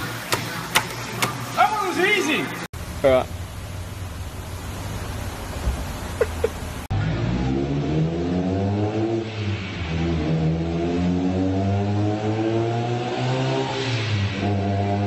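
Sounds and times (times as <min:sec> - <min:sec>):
car engine revving on dyno: 0:06.7 - 0:15.0.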